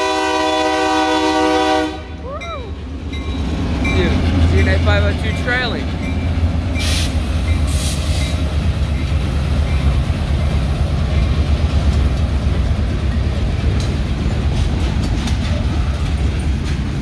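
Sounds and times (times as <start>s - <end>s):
diesel locomotive engine rumble: 0.0s - 17.0s
freight cars rolling by: 2.2s - 17.0s
sharp train wheel clicks: 11.8s - 17.0s.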